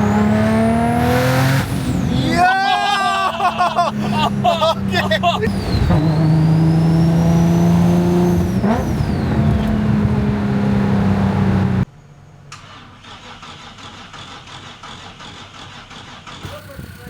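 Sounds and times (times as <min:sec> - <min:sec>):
car engine pulling hard: 0:00.0 - 0:11.9, 0:12.5 - 0:17.0
turbo whine: 0:05.4 - 0:11.8.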